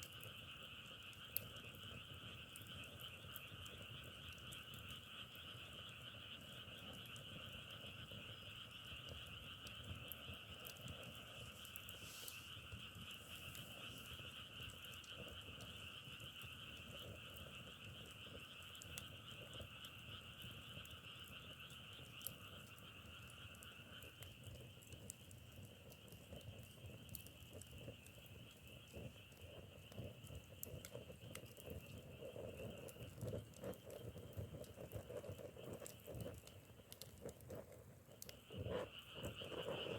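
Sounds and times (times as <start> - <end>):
lower-pitched frogs calling: 0.2 - 39.9
higher frog chorus trilling: 0.3 - 26.2, 38.0 - 39.9.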